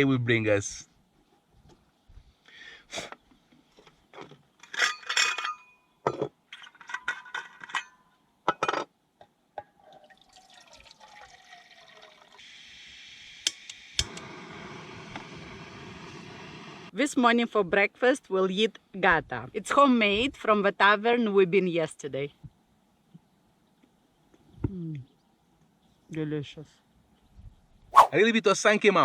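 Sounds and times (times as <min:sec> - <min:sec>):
dishes and glassware clinking: 0:04.6 - 0:08.9.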